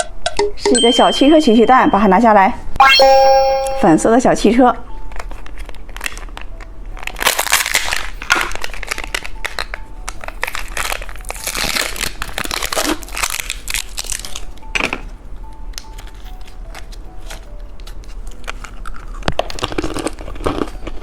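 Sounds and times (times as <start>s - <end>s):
plastic candy packaging crinkling: 5.0s - 21.0s.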